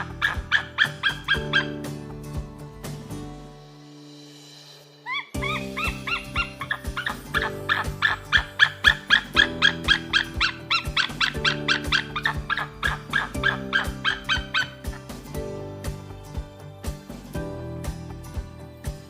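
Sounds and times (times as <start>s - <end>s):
falcon calling: 0.0s - 1.8s, 5.1s - 15.1s
background music with held notes: 0.0s - 19.0s.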